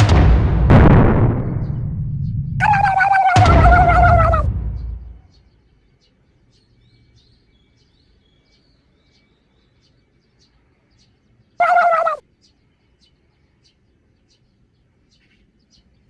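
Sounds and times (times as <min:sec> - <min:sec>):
faint bird chirps: 0:02.6 - 0:04.4, 0:05.3 - 0:16.0
loud wavering pitched sound: 0:02.6 - 0:04.5.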